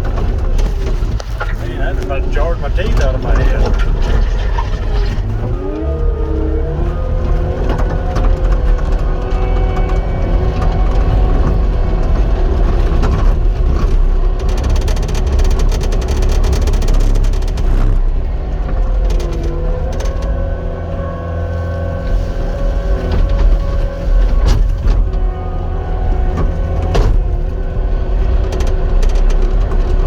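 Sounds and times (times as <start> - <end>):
diesel engine under load: 0.0 - 30.0
machine rattling clatter: 7.0 - 18.0.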